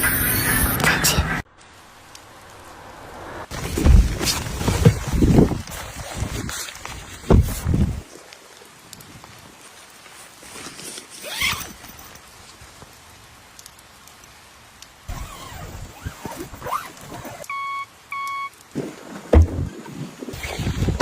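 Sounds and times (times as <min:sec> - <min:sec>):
faint rain: 0:01.4 - 0:21.0
rustling handling noises: 0:09.2 - 0:12.9
short electronic beeps: 0:17.5 - 0:18.6
loud thump: 0:19.3 - 0:19.7.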